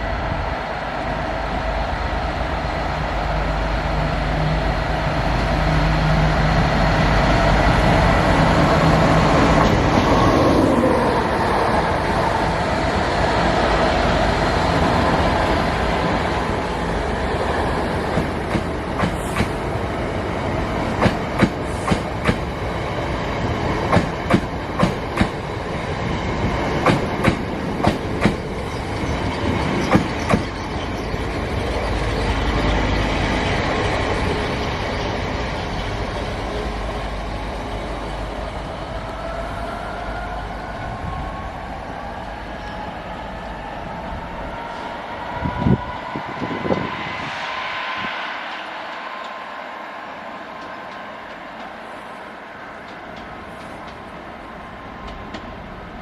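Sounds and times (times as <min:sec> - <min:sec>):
diesel locomotive engine passing: 0:00.0 - 0:56.0
train wheels clickety-clack: 0:18.1 - 0:19.6, 0:20.9 - 0:22.6, 0:23.8 - 0:25.5, 0:26.8 - 0:31.1, 0:52.8 - 0:54.1, 0:55.0 - 0:55.6.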